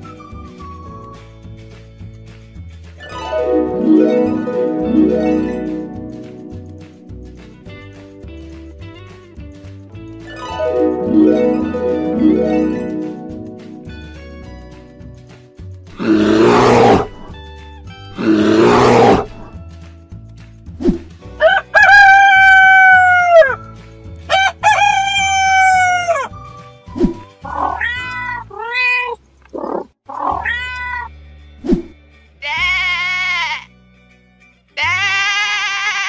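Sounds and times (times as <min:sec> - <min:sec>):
light background music: 0:00.0 - 0:29.4, 0:30.1 - 0:35.3
cartoon rough growls: 0:16.0 - 0:17.3, 0:18.2 - 0:19.5
rooster crows: 0:21.4 - 0:23.6, 0:24.3 - 0:26.3
wavering sheep bleat: 0:32.4 - 0:33.7, 0:34.8 - 0:36.0.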